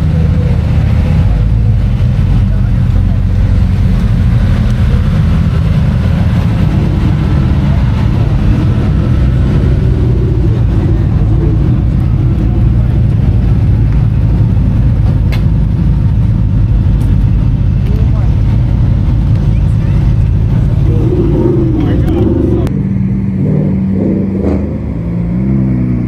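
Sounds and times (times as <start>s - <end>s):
faint voices: 0.0s - 15.2s, 17.7s - 22.7s
car engines rumbling: 0.0s - 26.0s.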